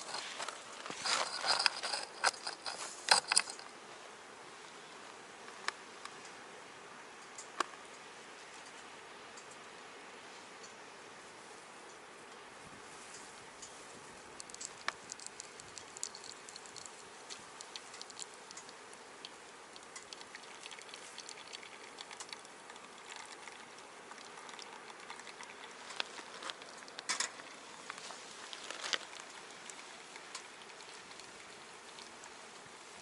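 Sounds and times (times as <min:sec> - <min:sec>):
wood fire crackling in stove: 0:10.6 - 0:33.0.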